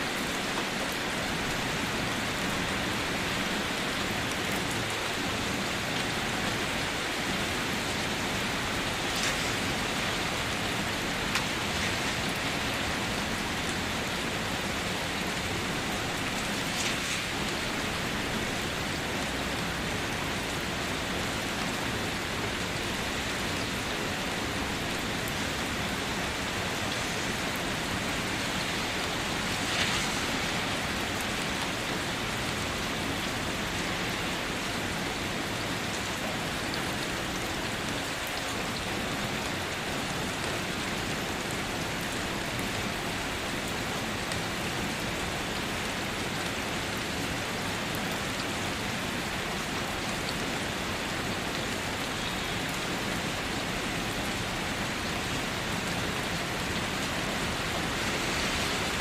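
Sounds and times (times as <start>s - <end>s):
louder raindrop splashes: 0.0s - 39.9s, 52.2s - 59.0s
steady rain falling: 0.0s - 59.0s.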